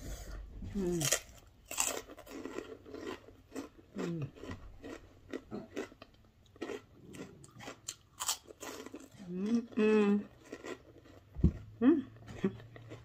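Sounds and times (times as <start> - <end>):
person chewing and crunching food: 0.0 - 13.0.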